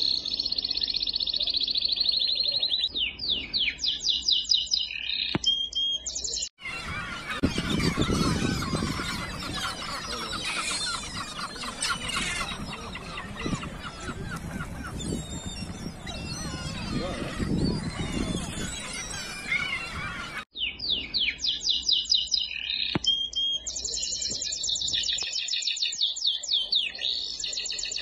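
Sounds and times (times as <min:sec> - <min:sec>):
chatter of many birds: 0:00.0 - 0:28.0
bird falling chirps: 0:02.9 - 0:21.4, 0:22.8 - 0:23.5.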